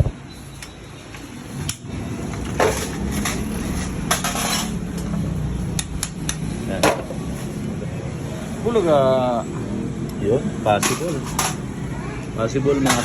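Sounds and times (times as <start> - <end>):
metal tools clinking on metal parts: 0.4 - 7.2, 10.7 - 11.8, 12.8 - 13.0.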